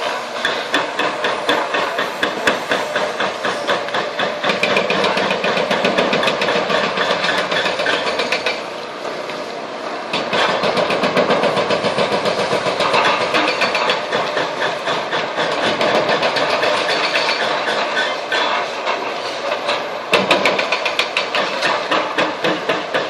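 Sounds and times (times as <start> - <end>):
diesel engine running: 0.0 - 15.8
hydraulic breaker hammering: 0.1 - 8.8, 10.1 - 19.0, 19.6 - 23.0.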